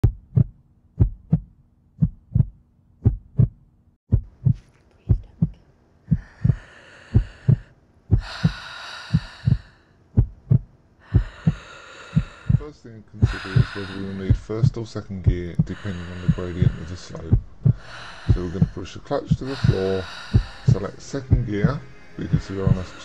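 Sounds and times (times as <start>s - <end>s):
heartbeat double thump: 0.0s - 6.6s, 7.2s - 8.6s, 9.2s - 9.6s, 10.2s - 11.6s, 12.2s - 21.8s
breathy rushing noise: 6.1s - 9.8s, 11.0s - 23.0s.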